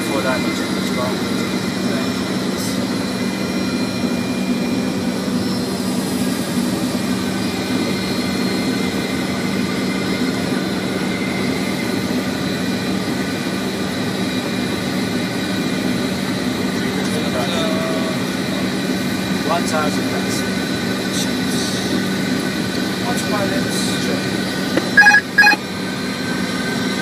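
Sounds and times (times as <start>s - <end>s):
jet airliner flight-deck hum: 20.3s - 25.6s
constant tones: 24.8s - 25.6s.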